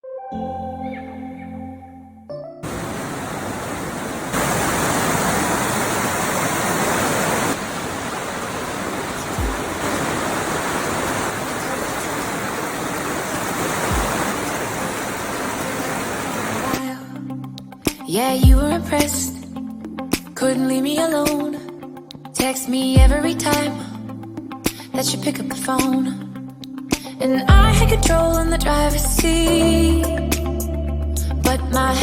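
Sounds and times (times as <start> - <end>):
falling water rushing: 2.6 - 16.8.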